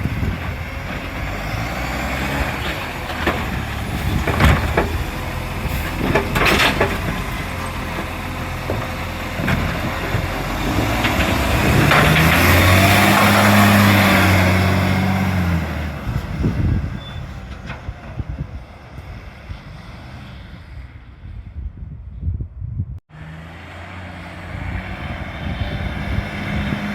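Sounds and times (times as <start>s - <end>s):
engine knocks: 0.0s - 15.5s
diesel engine revving: 0.0s - 21.5s, 23.1s - 26.9s.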